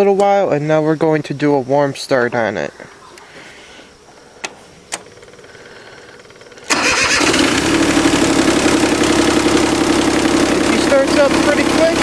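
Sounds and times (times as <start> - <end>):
diesel engine starting and running: 4.9 - 12.0.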